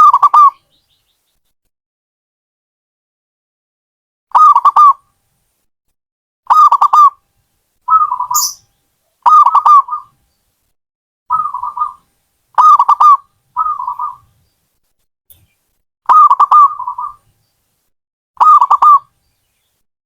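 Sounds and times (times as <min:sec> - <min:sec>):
dove cooing: 0:06.5 - 0:07.1, 0:07.9 - 0:08.6, 0:09.2 - 0:10.1, 0:11.3 - 0:12.0, 0:12.6 - 0:14.3, 0:16.1 - 0:17.2, 0:18.4 - 0:19.1.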